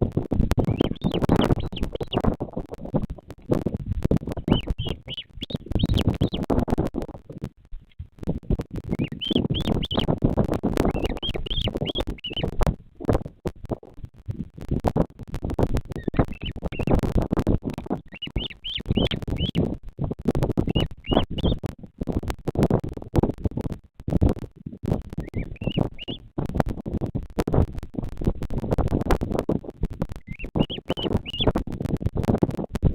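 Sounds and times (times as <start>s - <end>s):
crackling rustle on microphone: 0.0s - 32.9s
bird chick peeping: 0.5s - 7.3s, 7.9s - 13.1s, 15.4s - 21.7s, 24.9s - 26.3s, 30.0s - 31.6s.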